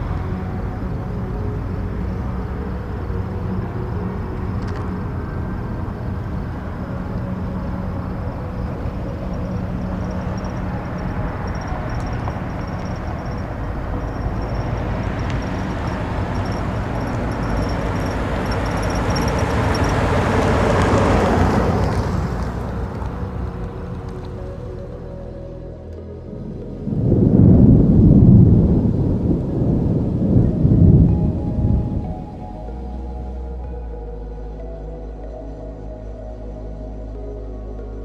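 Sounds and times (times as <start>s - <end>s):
wind-like rushing noise: 0.0s - 34.2s
low held tones: 0.0s - 38.0s.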